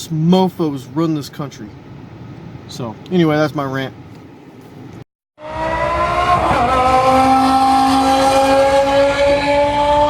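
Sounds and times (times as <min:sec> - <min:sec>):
car engine accelerating: 0:05.4 - 0:10.0.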